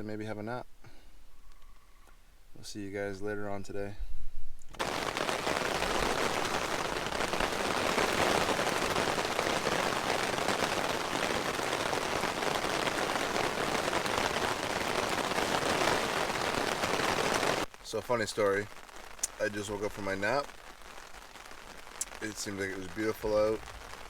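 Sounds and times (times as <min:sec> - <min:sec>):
heavy rain pouring: 0:04.8 - 0:24.0.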